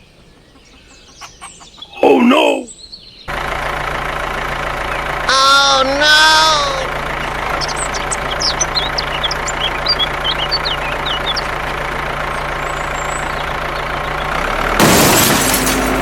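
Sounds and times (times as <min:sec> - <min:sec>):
birds chirping: 0:00.0 - 0:14.7
engine idling: 0:03.3 - 0:16.0.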